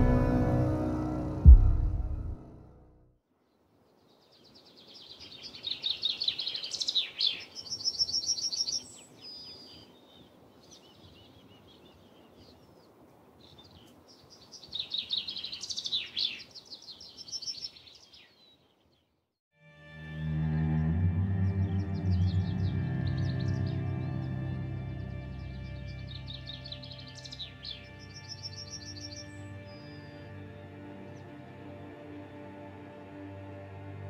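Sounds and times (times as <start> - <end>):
faint background noise: 3.3 - 19.1
soft bird chirps: 3.5 - 19.1.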